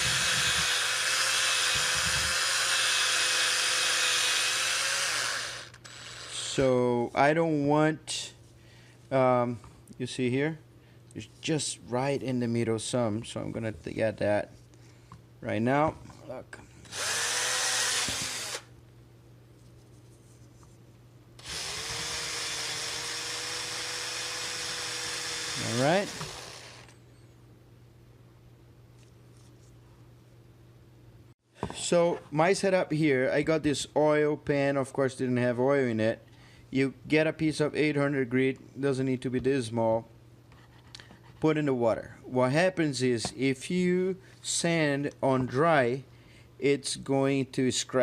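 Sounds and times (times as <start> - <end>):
electric drill whining: 0.0 - 6.6, 16.8 - 18.7, 21.4 - 27.0.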